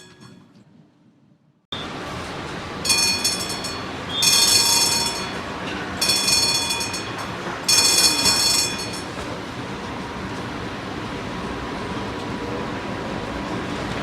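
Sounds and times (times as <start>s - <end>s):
high metallic ringing: 0.0s - 0.5s, 2.8s - 9.3s
tram rolling rumble: 0.0s - 14.0s.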